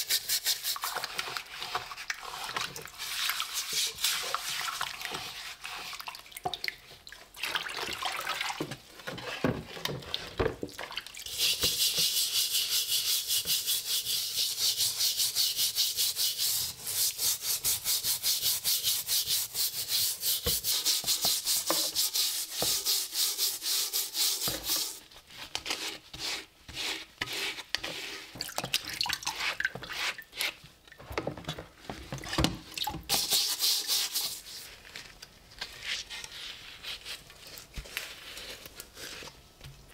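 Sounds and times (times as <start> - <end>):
scrubbing rusty steel helmet: 11.3 - 28.3.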